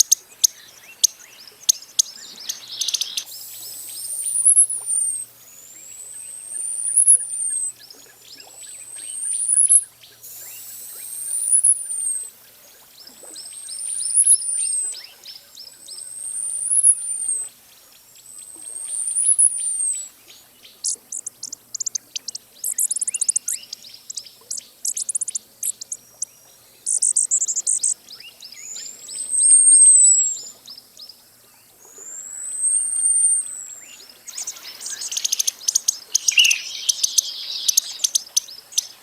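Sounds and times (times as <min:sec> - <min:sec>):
bird chirps: 0:00.0 - 0:12.3, 0:13.0 - 0:17.5, 0:18.2 - 0:39.0
hummingbird high whistles: 0:02.8 - 0:05.2, 0:06.5 - 0:07.7, 0:09.0 - 0:12.2, 0:16.2 - 0:17.4, 0:18.8 - 0:20.1, 0:29.3 - 0:30.5, 0:32.0 - 0:35.4, 0:36.2 - 0:37.9
high ticks: 0:20.8 - 0:26.3.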